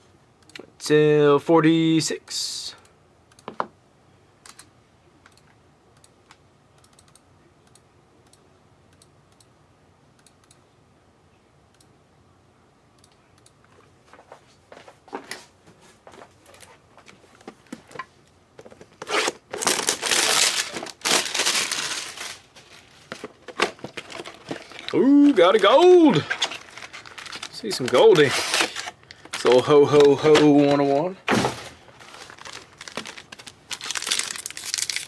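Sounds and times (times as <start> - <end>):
card packaging tearing and crinkling: 19.0 - 35.0.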